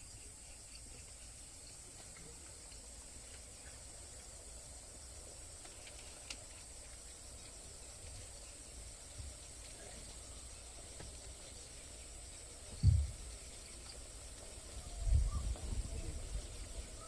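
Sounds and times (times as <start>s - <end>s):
insects chirping: 0.0s - 17.0s
faint low rumble: 12.7s - 13.5s.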